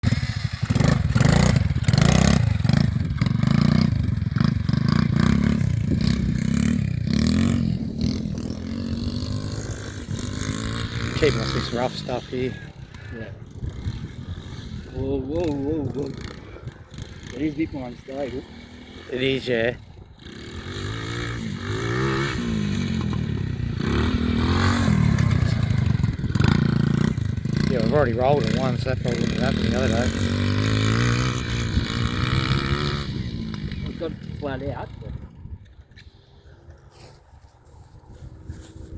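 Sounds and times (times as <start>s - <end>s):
wheels scraping and clattering: 0.0s - 14.9s, 20.2s - 34.3s
rc quad bike motor revving: 0.0s - 35.3s
toy quad bike motor revving: 20.2s - 33.9s.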